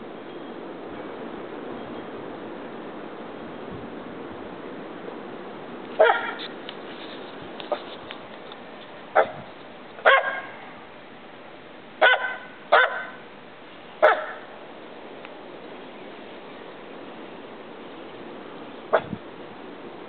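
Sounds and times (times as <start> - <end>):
steady background hiss: 0.0 - 20.0
dog barking: 6.0 - 6.4, 9.2 - 9.4, 10.0 - 10.6, 12.0 - 13.2, 14.0 - 14.5, 18.9 - 19.1.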